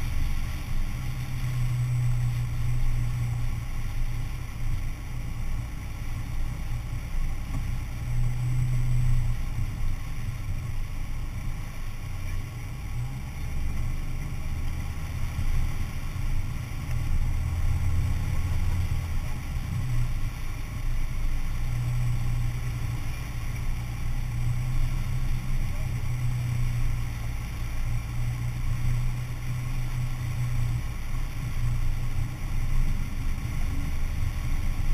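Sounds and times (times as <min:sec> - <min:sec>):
car engine running at low revs: 0:00.0 - 0:34.9.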